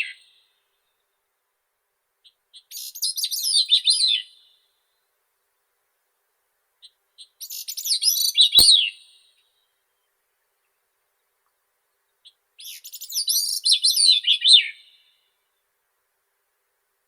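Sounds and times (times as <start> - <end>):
brief click: 8.6 - 8.9.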